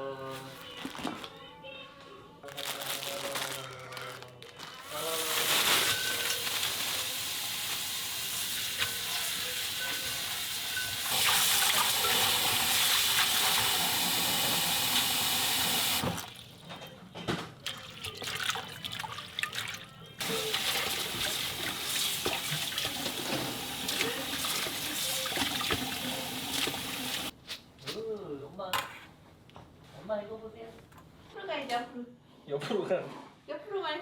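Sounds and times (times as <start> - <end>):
tap water running into sink: 6.1 - 16.6, 17.6 - 27.3.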